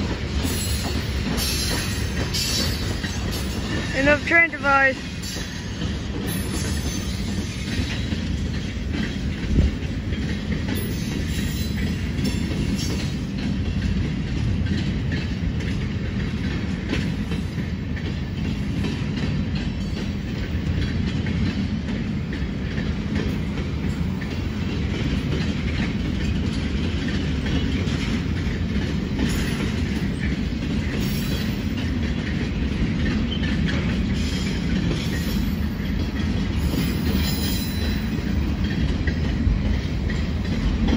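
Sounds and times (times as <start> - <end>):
freight train cars rolling past: 0.0 - 40.9.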